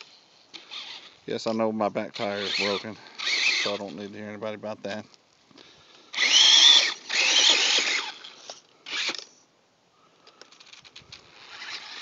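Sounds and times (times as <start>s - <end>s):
rc truck electric motor whining: 0.6s - 1.2s, 2.2s - 4.0s, 6.1s - 9.4s, 10.5s - 12.0s.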